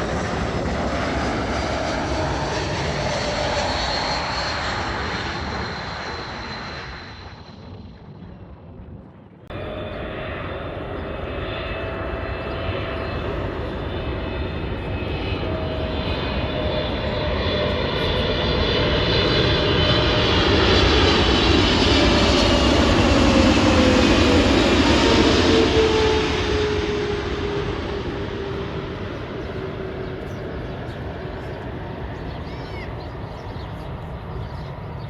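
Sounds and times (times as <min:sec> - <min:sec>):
jet airliner engines whining: 0:00.0 - 0:35.0.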